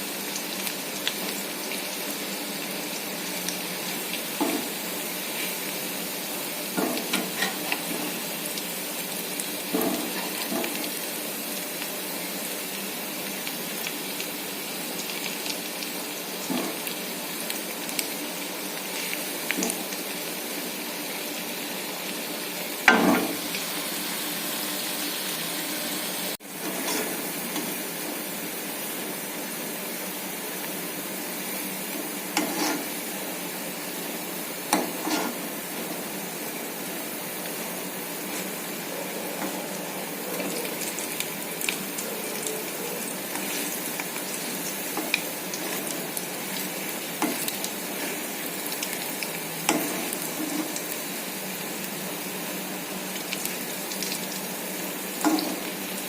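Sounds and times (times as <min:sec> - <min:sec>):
fritters sizzling in hot oil: 0:00.0 - 0:56.0
metal spatula scraping pan: 0:06.8 - 0:08.2, 0:26.6 - 0:27.7, 0:32.3 - 0:33.0, 0:34.7 - 0:35.5, 0:49.7 - 0:50.8.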